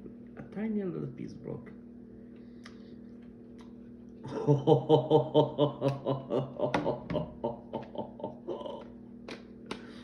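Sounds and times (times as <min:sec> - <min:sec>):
man laughing: 0:04.2 - 0:09.0.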